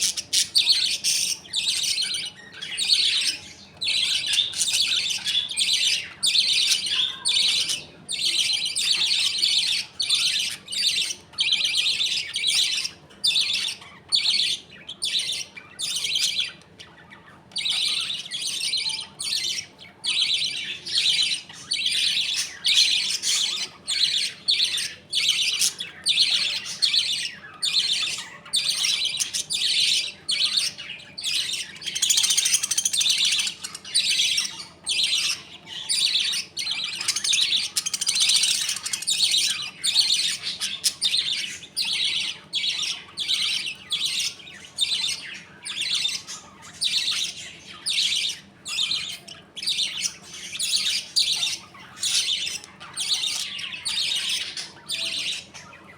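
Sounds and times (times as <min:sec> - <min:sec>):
budgerigars chattering and chirping: 0:00.0 - 0:55.9.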